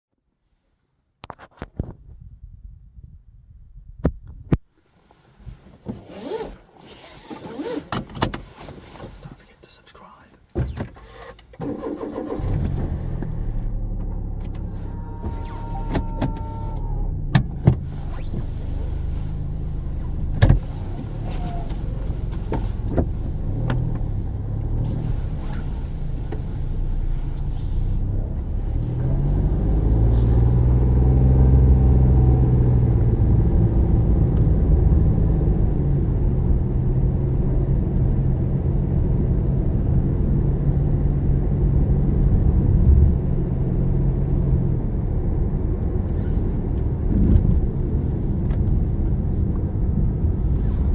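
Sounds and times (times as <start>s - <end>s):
road rumble: 2.2s - 50.9s
car engine accelerating: 11.6s - 50.9s.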